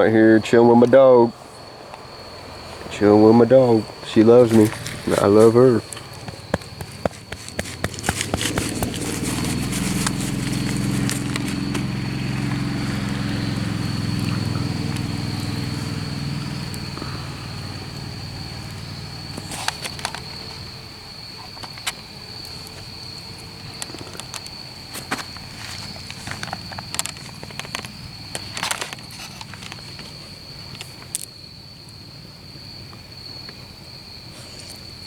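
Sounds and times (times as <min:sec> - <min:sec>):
high-pitched insect drone: 0:00.0 - 0:30.3
motor humming: 0:04.6 - 0:19.5
light clicks and rustles: 0:21.4 - 0:31.3.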